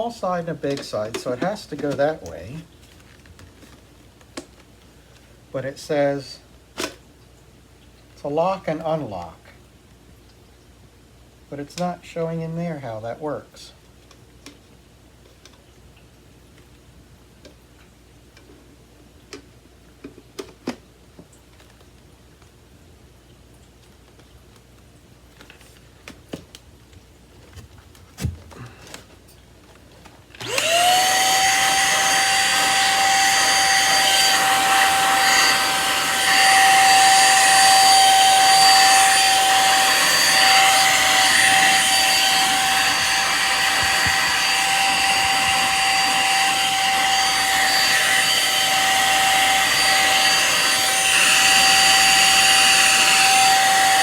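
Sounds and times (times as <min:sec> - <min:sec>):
vacuum cleaner motor whine: 0:30.4 - 0:54.0.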